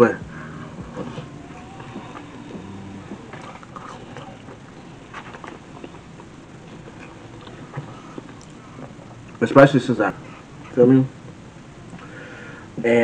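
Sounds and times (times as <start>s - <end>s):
person chewing food: 0.4s - 9.4s.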